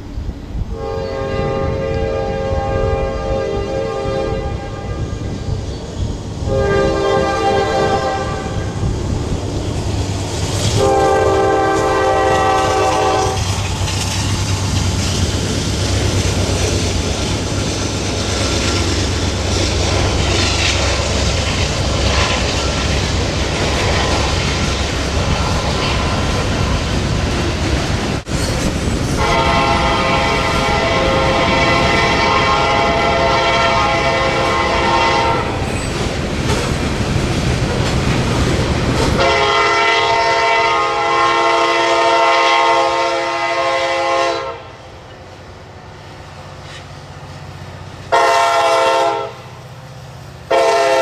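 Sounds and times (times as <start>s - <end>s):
locomotive air horn: 0.7s - 5.4s, 6.4s - 8.8s, 10.7s - 13.5s, 29.2s - 35.7s, 39.1s - 44.8s, 48.1s - 49.6s, 50.5s - 51.0s
train wheels clattering on rail: 4.7s - 40.2s, 46.5s - 47.4s.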